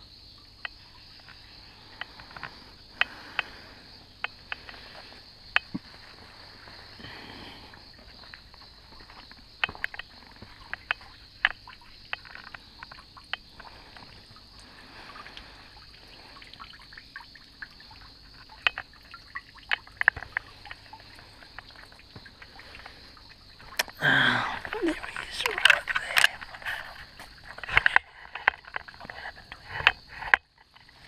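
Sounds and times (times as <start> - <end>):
night insects chorus: 0.0 - 31.0.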